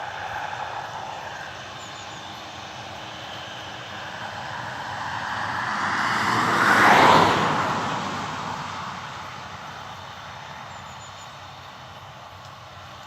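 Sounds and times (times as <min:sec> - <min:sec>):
vehicle passing by: 0:00.0 - 0:10.3.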